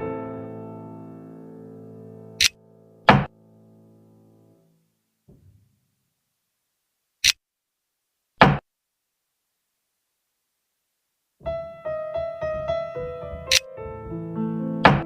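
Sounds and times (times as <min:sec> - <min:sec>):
piano-like background music: 0:00.0 - 0:04.6, 0:11.4 - 0:15.0.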